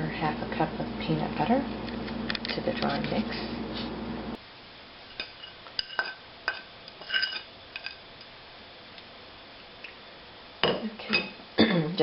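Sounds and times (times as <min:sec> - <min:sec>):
utensil clinking against bowl: 0:05.2 - 0:08.0.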